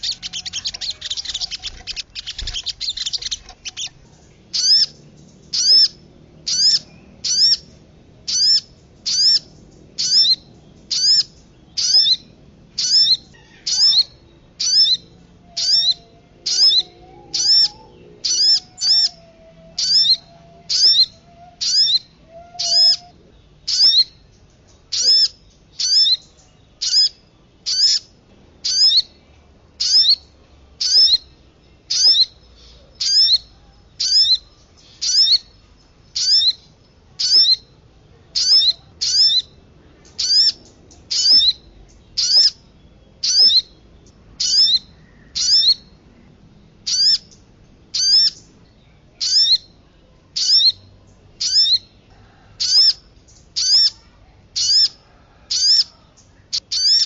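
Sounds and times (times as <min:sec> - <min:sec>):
bird lure call: 0:00.0 - 0:04.0, 0:15.6 - 0:24.1.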